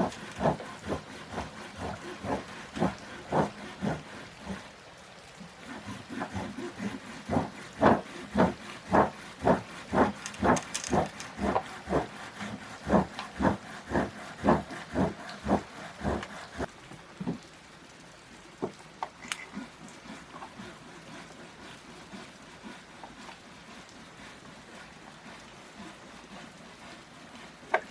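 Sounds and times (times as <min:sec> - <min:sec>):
steady rhythmic thuds: 0:00.0 - 0:04.6, 0:05.7 - 0:16.7.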